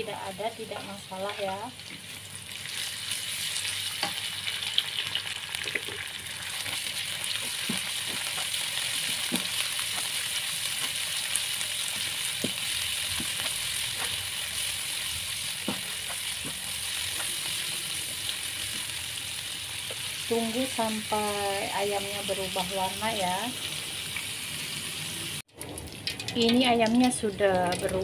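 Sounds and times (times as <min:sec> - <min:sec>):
chicken sizzling in frying pan: 0:00.0 - 0:27.2.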